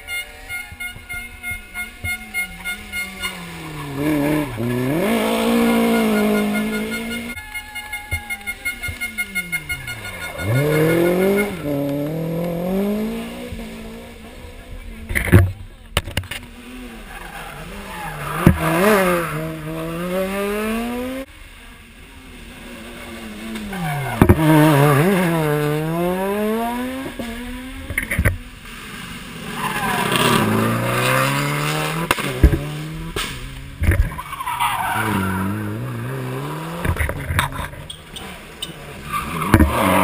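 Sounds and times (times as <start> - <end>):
tyre squeal: 0.0 - 12.1, 17.0 - 20.2, 34.0 - 40.0
rally car engines revving: 0.0 - 40.0.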